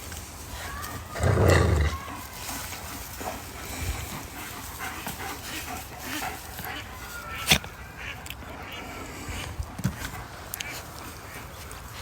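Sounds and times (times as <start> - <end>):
dog growling: 1.2 - 2.0.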